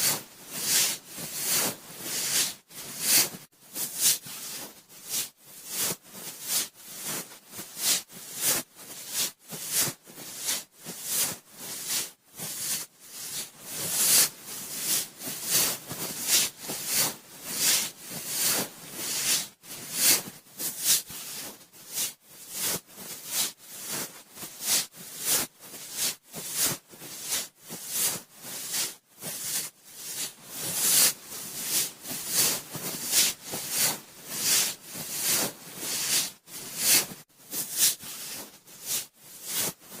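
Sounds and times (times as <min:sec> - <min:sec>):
cotton swab scratching microphone: 0:00.0 - 0:39.8.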